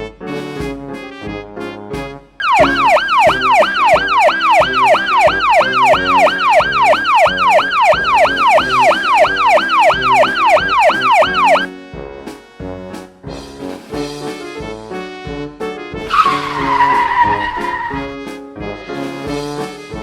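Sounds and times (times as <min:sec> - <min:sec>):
background music: 0:00.0 - 0:20.0
police siren yelping: 0:02.4 - 0:11.7, 0:16.1 - 0:18.1.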